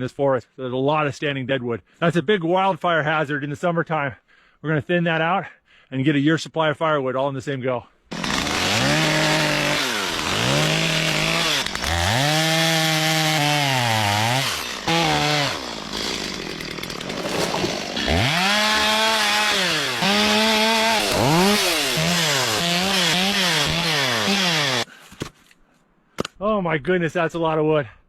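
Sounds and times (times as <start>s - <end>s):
chainsaw cutting wood: 8.1s - 24.9s.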